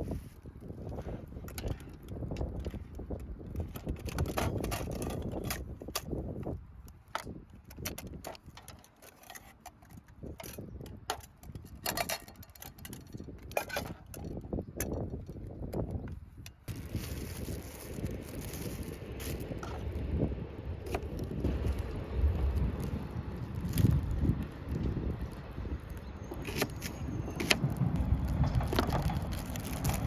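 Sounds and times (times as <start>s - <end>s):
wind noise rumble: 0.0s - 30.0s
small hard objects clinking: 16.7s - 20.0s, 20.9s - 30.0s.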